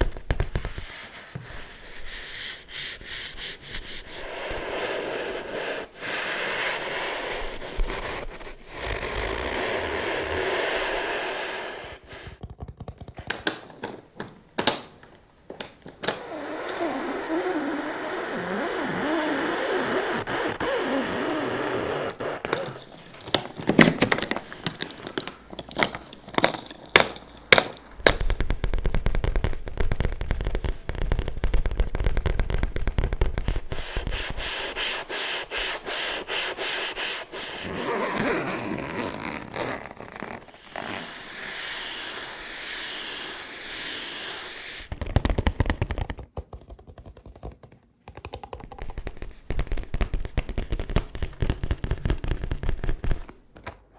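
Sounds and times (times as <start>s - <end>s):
fingers tapping on objects: 12.3s - 16.1s, 22.4s - 34.3s, 44.9s - 53.4s
fingers scratching surfaces: 16.2s - 46.2s.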